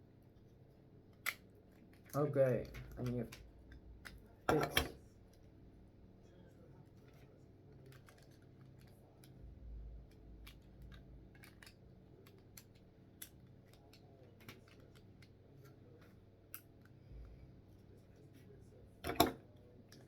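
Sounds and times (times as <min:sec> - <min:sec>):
plastic building bricks clicking: 0:01.2 - 0:03.5, 0:10.1 - 0:15.4.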